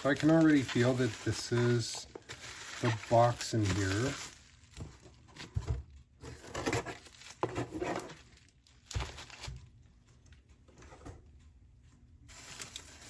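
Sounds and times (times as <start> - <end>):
packing material rustling and crinkling: 0.0 - 5.6, 6.3 - 9.8, 12.3 - 13.0.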